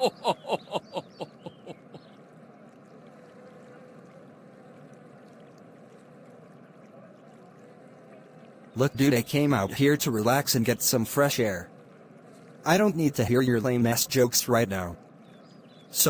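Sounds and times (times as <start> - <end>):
man laughing: 0.0 - 2.0
steady background hiss: 8.8 - 15.3.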